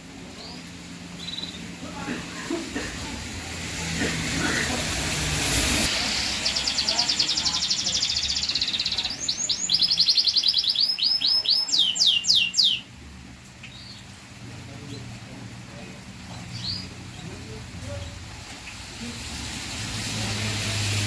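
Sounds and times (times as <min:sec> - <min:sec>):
canary singing: 0:00.3 - 0:01.8, 0:06.2 - 0:13.0
hiss: 0:02.0 - 0:08.8, 0:18.4 - 0:21.0.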